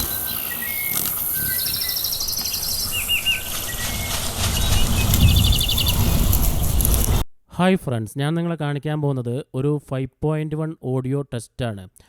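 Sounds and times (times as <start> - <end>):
birdsong trills and chirps: 0.0 - 7.2
steady rushing background: 0.0 - 7.2
low rumble: 1.8 - 7.2.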